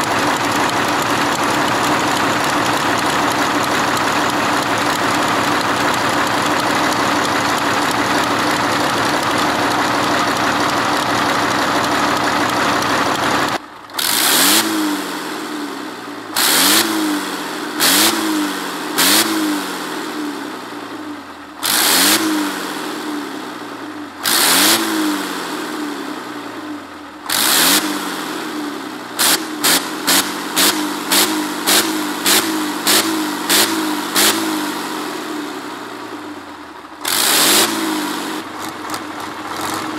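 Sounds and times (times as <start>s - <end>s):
engine running and revving: 0.0s - 39.9s.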